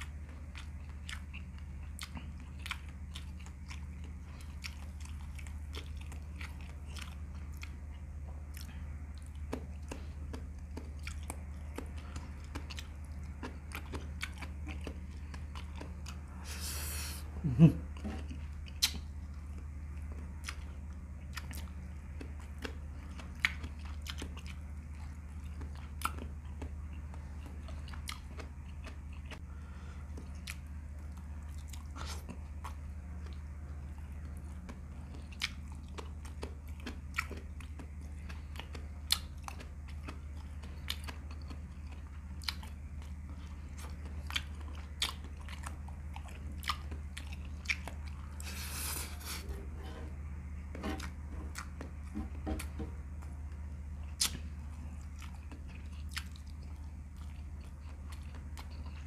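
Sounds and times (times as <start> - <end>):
wet chewing with lip smacks: 0.0 - 17.1, 17.9 - 59.0
steady low hum: 0.0 - 59.0.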